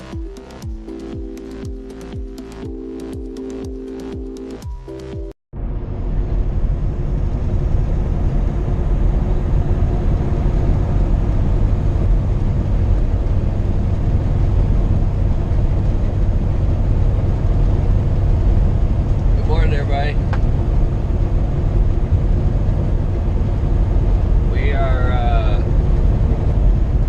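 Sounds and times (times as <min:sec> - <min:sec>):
truck engine drone: 0:00.0 - 0:27.0
road and wind noise: 0:05.5 - 0:27.0.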